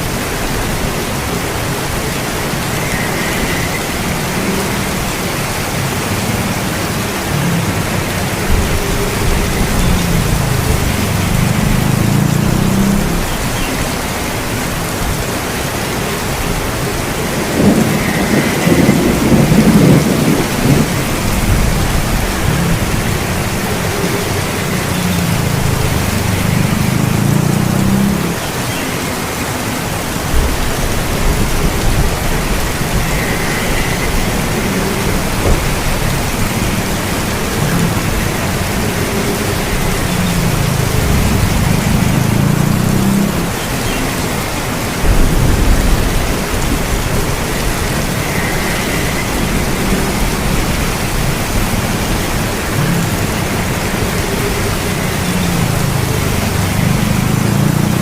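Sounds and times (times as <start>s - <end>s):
thunder rumbling: 0.0s - 28.6s, 29.8s - 58.0s
steady rain: 0.0s - 58.0s.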